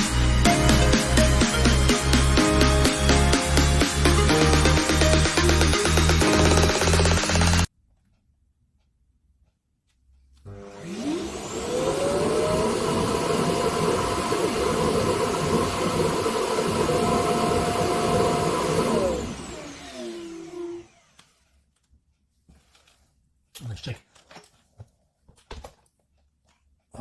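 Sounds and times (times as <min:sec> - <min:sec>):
suction motor whine: 0:03.5 - 0:07.7, 0:10.5 - 0:21.4.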